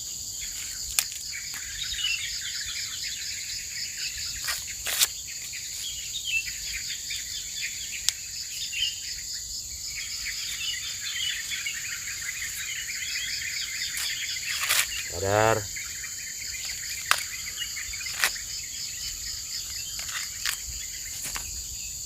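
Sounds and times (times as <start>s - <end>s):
insects droning: 0.0s - 22.0s
birds chirping: 0.4s - 22.0s.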